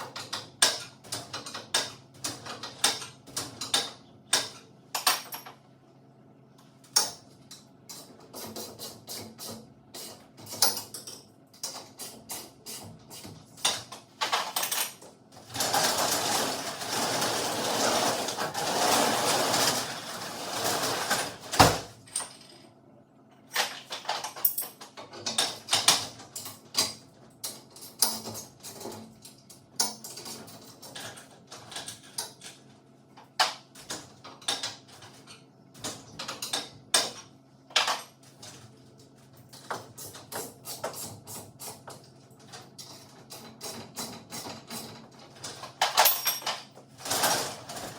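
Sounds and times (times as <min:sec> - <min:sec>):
garage door running: 0:15.4 - 0:22.5, 0:47.0 - 0:47.9.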